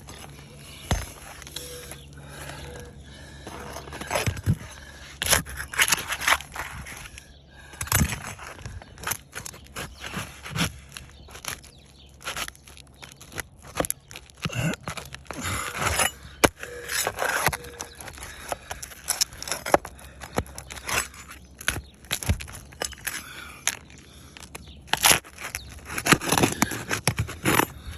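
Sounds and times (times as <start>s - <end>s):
tool scraping under shingles: 0.0s - 27.9s.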